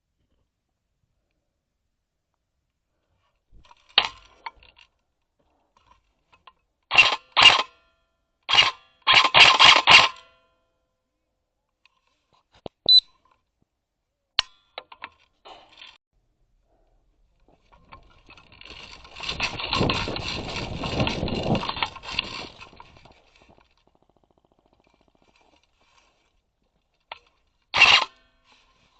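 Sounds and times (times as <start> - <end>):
short high beep: 12.9 - 13.1.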